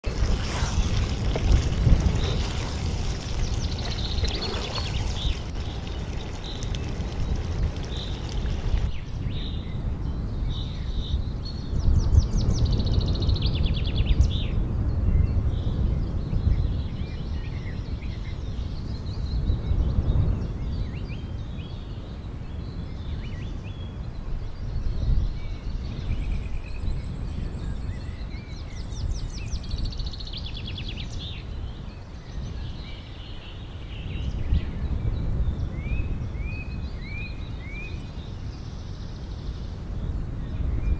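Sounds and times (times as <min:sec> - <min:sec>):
birds chirping and trilling: 0:00.0 - 0:09.6
low rumble of wind: 0:00.0 - 0:40.9.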